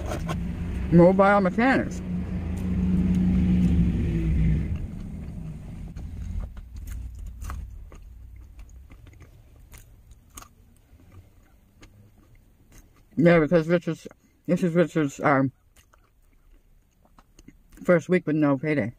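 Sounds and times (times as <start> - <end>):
vehicle engine and road rumble: 0.0 - 18.9
person chewing a snack: 4.7 - 13.4, 15.6 - 17.9.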